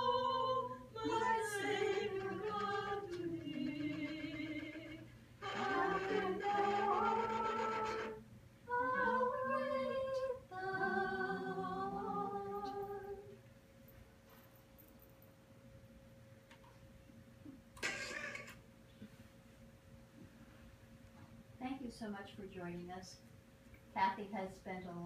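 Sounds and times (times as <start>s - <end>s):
person singing unaccompanied: 0.0s - 13.3s.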